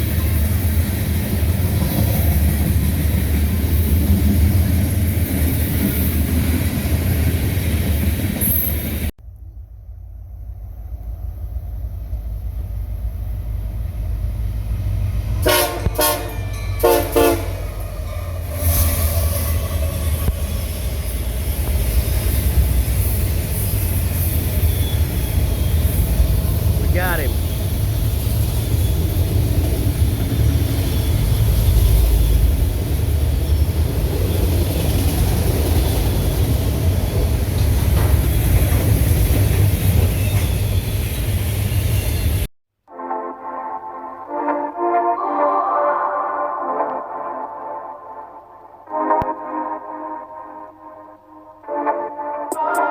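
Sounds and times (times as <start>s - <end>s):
train rumbling: 0.0s - 42.5s
locomotive air horn blasts: 15.4s - 17.8s.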